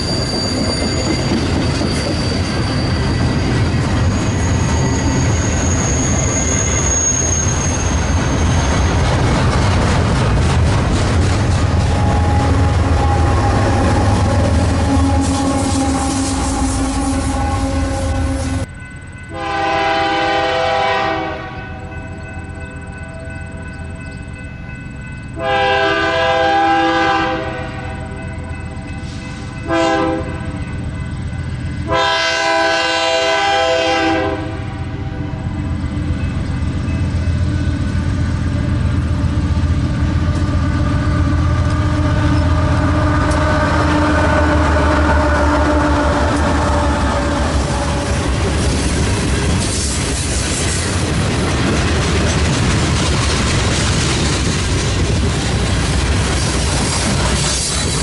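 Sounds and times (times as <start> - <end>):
train engines and wheels rumbling: 0.0 - 58.0
locomotive air horn blasts: 11.8 - 18.7, 19.3 - 21.9, 25.4 - 28.1, 29.6 - 30.6, 31.8 - 35.5, 41.3 - 48.4.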